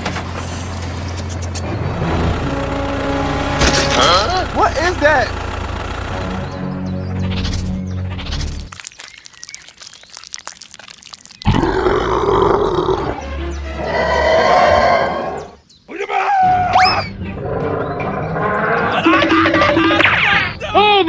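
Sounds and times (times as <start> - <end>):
background music: 1.6 - 8.7, 12.6 - 15.5, 16.4 - 21.0
animal roar: 11.5 - 13.2, 13.8 - 15.6, 17.3 - 19.8.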